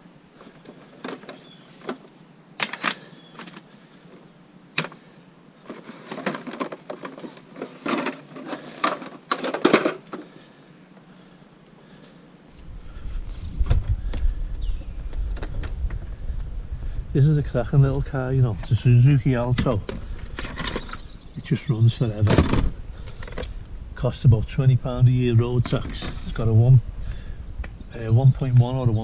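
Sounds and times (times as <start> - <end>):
low rumble: 12.6 - 21.4.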